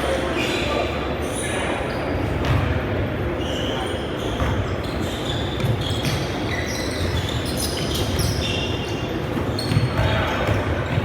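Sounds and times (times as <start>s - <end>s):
balls bouncing on gym floor: 2.3s - 2.9s, 9.2s - 11.0s.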